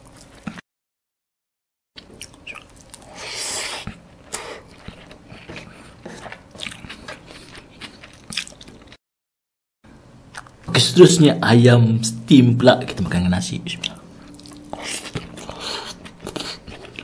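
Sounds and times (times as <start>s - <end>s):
wet chewing mouth sounds: 2.0s - 9.0s, 13.8s - 17.0s.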